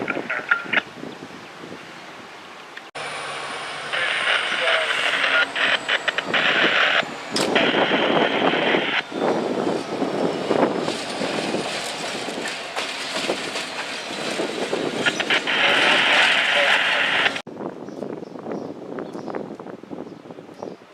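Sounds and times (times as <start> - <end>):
train wheels rumbling on rail: 4.6 - 17.4.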